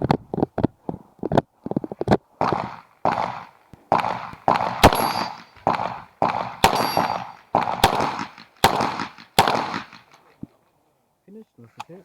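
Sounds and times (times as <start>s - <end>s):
pistol shots with echo: 2.4s - 10.2s
metallic ring of steel targets: 4.8s - 5.7s, 6.6s - 7.5s.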